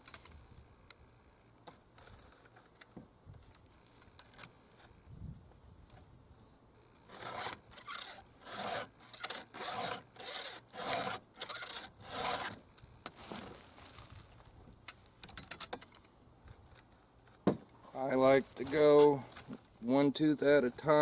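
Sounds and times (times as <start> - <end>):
file rasping on saw chain: 7.1 - 12.6.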